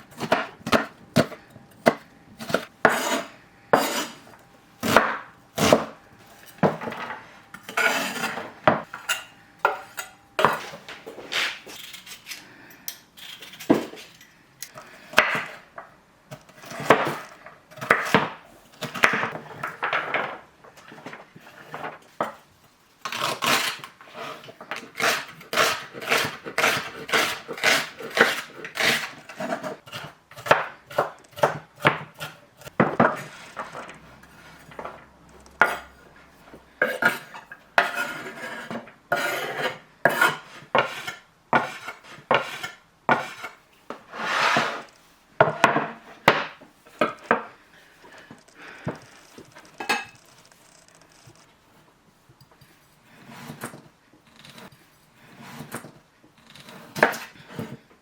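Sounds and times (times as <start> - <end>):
pots and dishes clattering: 49.8 - 50.2.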